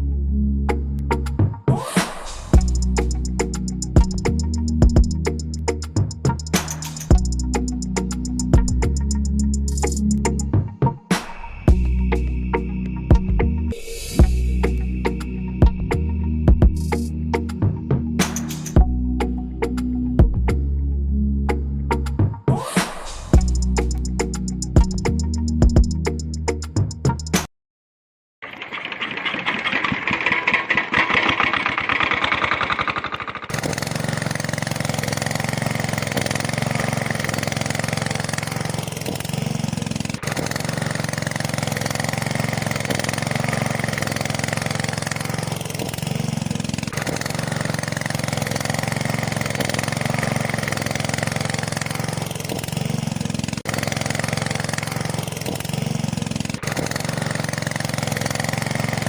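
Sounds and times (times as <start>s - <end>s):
engine idling: 2.3s - 13.6s, 14.2s - 17.6s, 23.4s - 26.6s, 28.5s - 59.0s
fast buzzing rattle: 2.6s - 10.5s, 23.4s - 27.3s, 28.7s - 59.0s.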